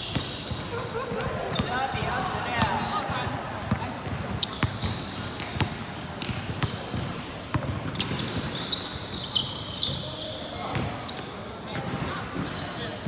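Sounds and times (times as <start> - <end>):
basketball bouncing on court: 0.0 - 8.7
sneakers squeaking: 0.0 - 13.0.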